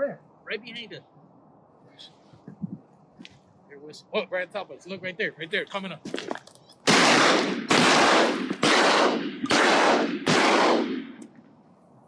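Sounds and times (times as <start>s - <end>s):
shotgun shots echoing: 6.8s - 11.4s.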